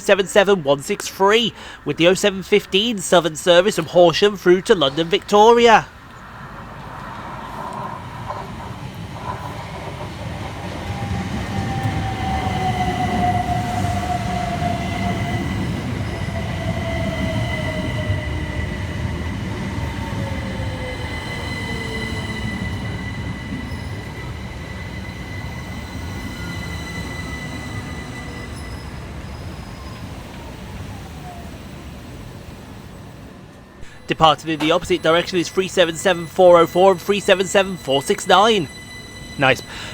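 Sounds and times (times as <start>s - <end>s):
train wheels rumbling on rail: 5.9s - 33.7s.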